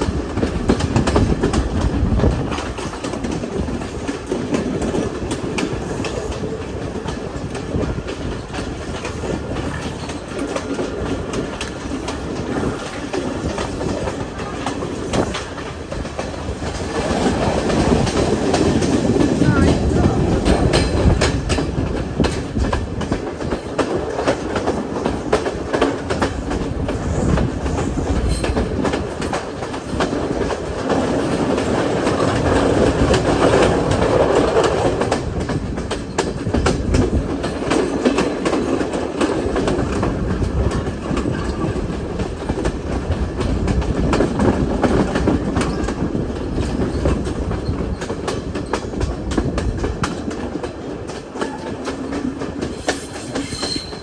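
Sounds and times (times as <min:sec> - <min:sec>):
train rumbling on track: 0:00.0 - 0:54.0
wheels clattering over rail joints: 0:00.0 - 0:54.0.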